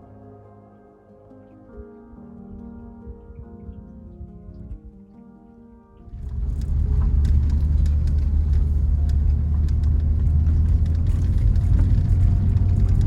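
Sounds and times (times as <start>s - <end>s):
car driving on rough road: 6.1s - 13.0s
small clicks and knocks: 6.2s - 13.0s.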